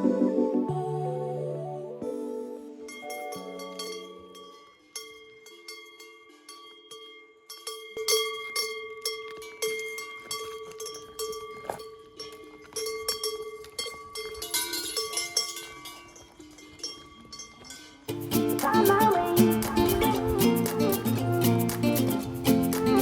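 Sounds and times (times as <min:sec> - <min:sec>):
cowbells clanking: 0:02.9 - 0:19.0.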